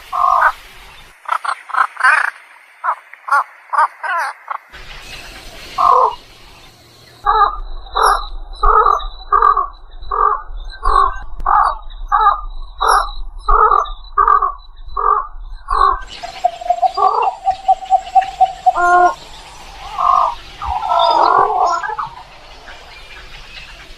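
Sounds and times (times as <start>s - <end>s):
egret harsh croaking calls: 7.2s - 22.4s.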